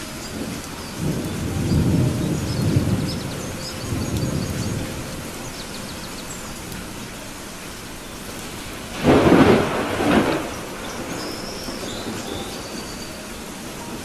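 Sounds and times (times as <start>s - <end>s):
low rumble of thunder: 0.0s - 14.0s
steady rain: 0.0s - 14.0s
loud thunder clap: 0.4s - 6.9s, 8.5s - 12.9s.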